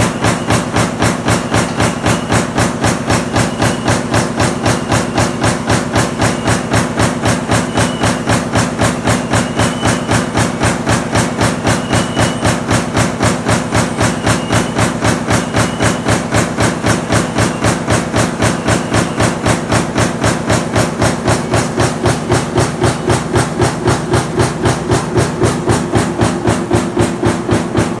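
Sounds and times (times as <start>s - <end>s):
power press striking: 0.0s - 28.0s
steady machine hum: 0.0s - 28.0s.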